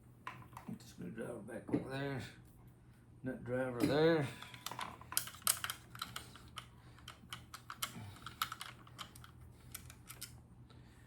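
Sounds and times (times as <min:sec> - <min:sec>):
light clicks and taps of metal parts: 0:04.4 - 0:10.8.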